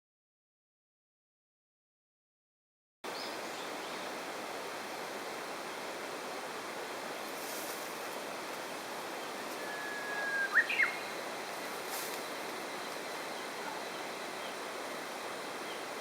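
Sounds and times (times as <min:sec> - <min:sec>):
stream rushing: 0:03.1 - 0:16.0
bird whistling: 0:09.6 - 0:11.1.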